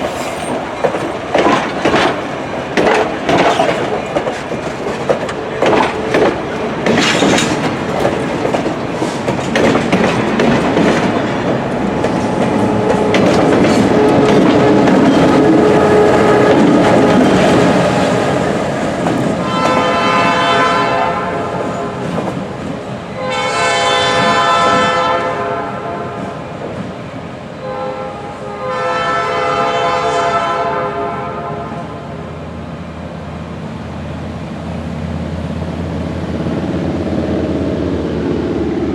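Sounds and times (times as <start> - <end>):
train wheels clattering over rail joints: 0.0 - 20.2
locomotive air horn blasts: 12.6 - 16.7, 19.4 - 22.0, 23.1 - 26.3, 27.6 - 32.1.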